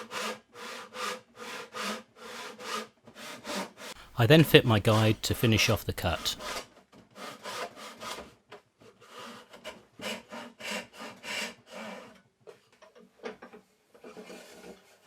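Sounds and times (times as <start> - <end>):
hand saw cutting wood: 0.0 - 4.0, 6.4 - 12.2, 13.9 - 15.0.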